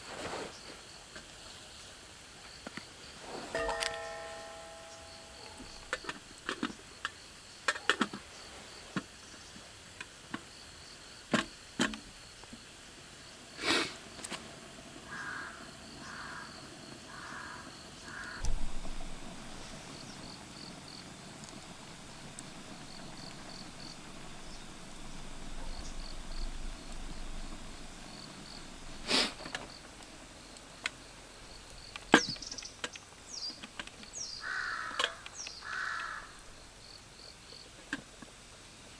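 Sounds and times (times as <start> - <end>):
crow cawing: 15.1 - 18.4, 34.4 - 36.4
insects chirping in a pulsing trill: 17.7 - 32.7, 33.3 - 37.7.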